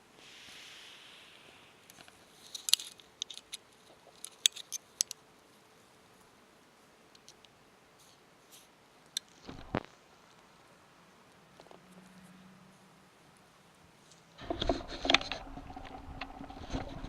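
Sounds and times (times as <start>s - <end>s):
soft hiss: 0.0s - 17.0s
claws clicking on hard surface: 1.9s - 5.2s.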